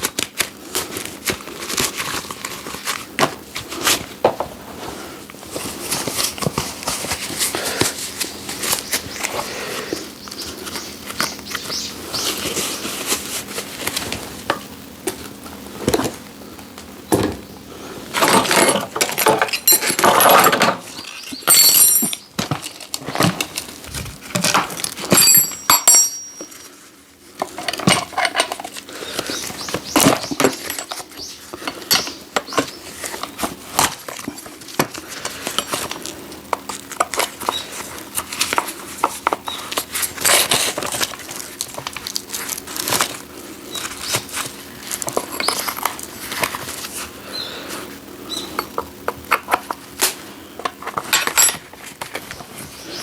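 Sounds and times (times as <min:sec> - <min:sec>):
objects knocking and clattering: 0:18.2 - 0:23.6, 0:24.3 - 0:26.6, 0:27.4 - 0:28.8.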